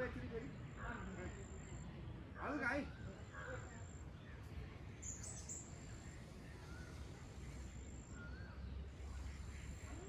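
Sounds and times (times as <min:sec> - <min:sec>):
faint whistled bird calls: 0:05.0 - 0:09.9.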